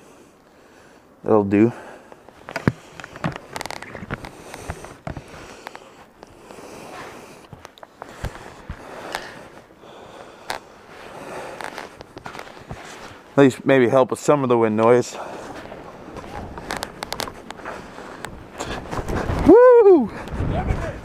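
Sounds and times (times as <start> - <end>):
rustling: 2.2 - 13.6, 15.2 - 19.5
wind noise: 15.2 - 21.0.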